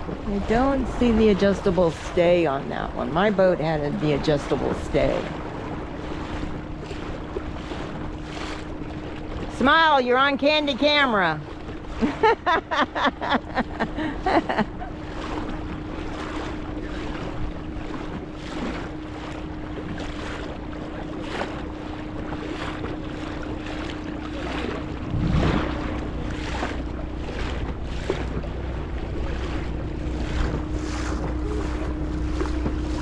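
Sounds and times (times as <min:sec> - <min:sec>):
boat motor running: 0:00.0 - 0:33.0
water around hull: 0:00.0 - 0:33.0
wind buffeting microphone: 0:13.4 - 0:33.0.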